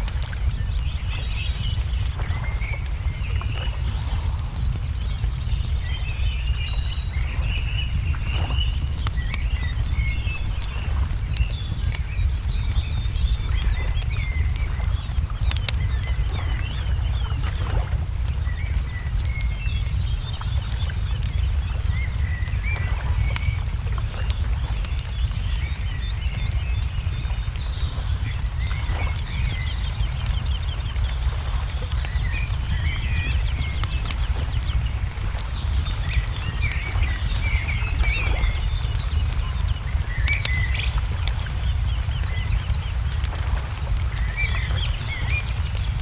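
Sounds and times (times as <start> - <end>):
low rumble: 0.0 - 46.0
small birds chirping: 0.0 - 46.0
wood fire crackling: 0.0 - 46.0.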